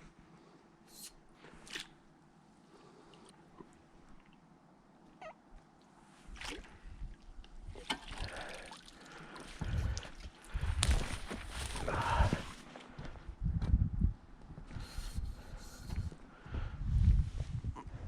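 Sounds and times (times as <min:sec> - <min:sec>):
water sloshing and trickling: 0:01.5 - 0:02.2, 0:02.8 - 0:11.8.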